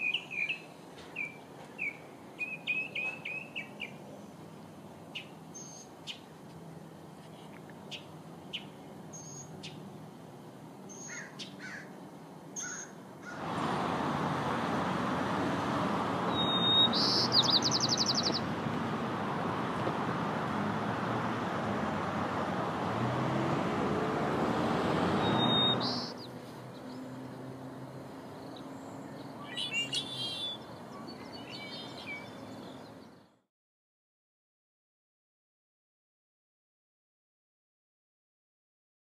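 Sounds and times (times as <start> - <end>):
birds chirping: 0.0 - 33.4
trilled bird call: 10.9 - 11.9, 12.6 - 13.5, 16.2 - 18.4, 25.2 - 26.3, 29.1 - 32.4
loud steady rushing noise: 13.4 - 26.1.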